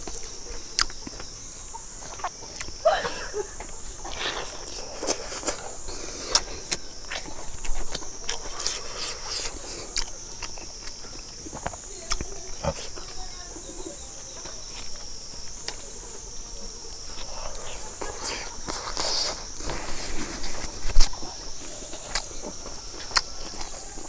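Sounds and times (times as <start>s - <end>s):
crunchy clicks: 0.0s - 2.8s, 3.6s - 13.2s, 16.7s - 24.0s
wet chewing and lip smacks: 0.0s - 2.8s, 4.0s - 13.2s, 20.5s - 23.8s
high-pitched insect drone: 0.0s - 24.0s.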